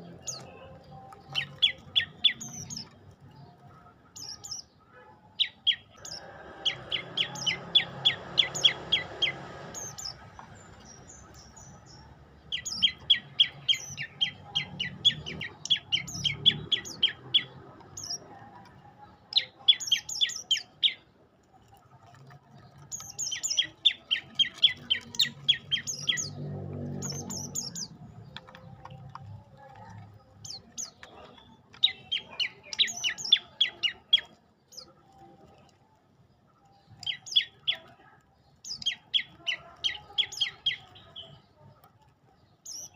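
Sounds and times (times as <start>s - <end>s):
songbird rapid high chirping: 0.0s - 3.5s, 5.4s - 18.2s, 22.8s - 29.0s, 30.2s - 35.2s, 36.8s - 37.8s, 38.6s - 41.7s, 42.5s - 42.9s.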